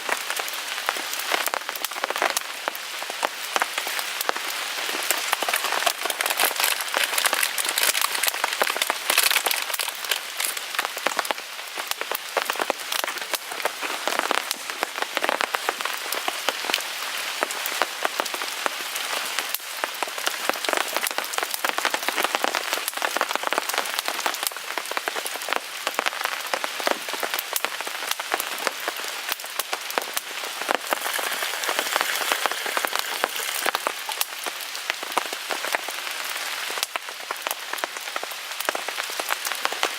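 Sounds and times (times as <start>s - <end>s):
rain pattering on a tarp: 0.0s - 39.9s
wood fire crackling: 0.0s - 39.9s.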